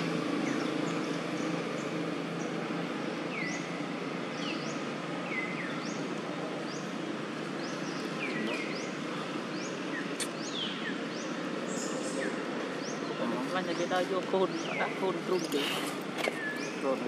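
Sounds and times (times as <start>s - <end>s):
bird chirping: 0.0s - 17.0s
outdoor background hiss: 0.0s - 17.0s
sharp click: 10.2s - 10.4s.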